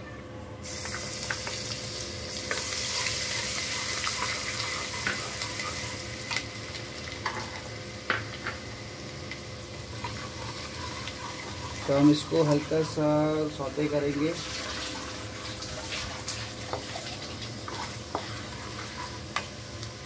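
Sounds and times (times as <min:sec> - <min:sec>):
garlic sizzling in hot oil: 0:00.6 - 0:20.0
spatula knocking and scraping pan: 0:16.6 - 0:19.5.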